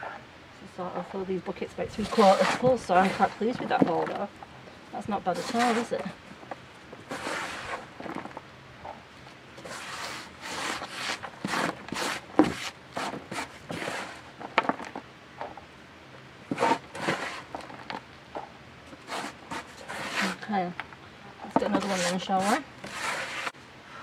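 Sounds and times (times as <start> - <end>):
hands rustling through compost: 5.0 - 6.2.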